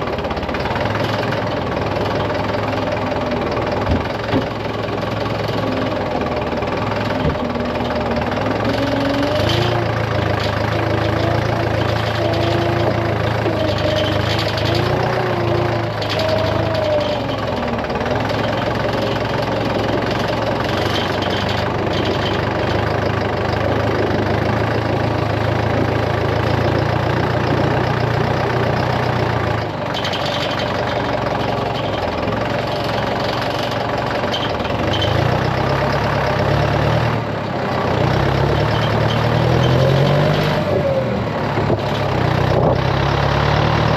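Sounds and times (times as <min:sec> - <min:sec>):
vehicle engine running: 0:00.0 - 0:43.9.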